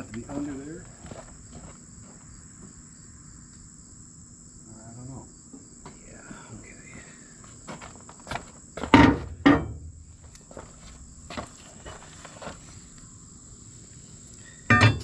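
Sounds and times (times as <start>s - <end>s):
crickets droning: 0.0s - 15.0s
knocks and clunks: 8.8s - 10.0s, 14.7s - 15.0s.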